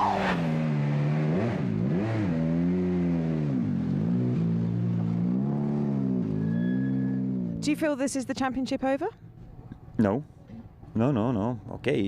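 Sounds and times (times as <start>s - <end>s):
rally car engine revving: 0.0s - 7.7s.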